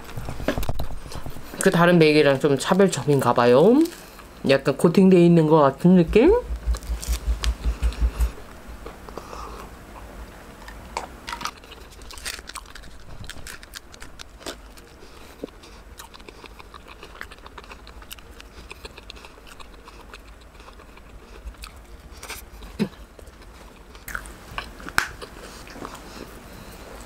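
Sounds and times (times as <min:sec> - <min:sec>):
person chewing bagel: 0:06.6 - 0:27.0
small crunches and clicks: 0:10.6 - 0:26.0.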